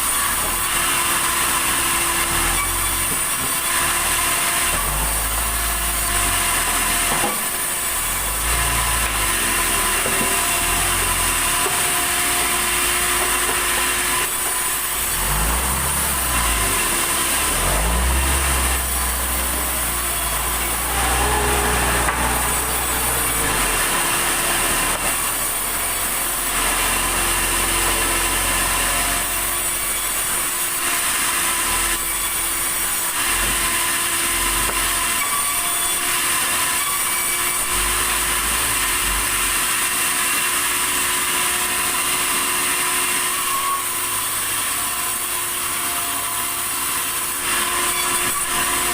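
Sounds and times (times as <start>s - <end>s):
sawmill saw cutting log: 0.0s - 48.9s.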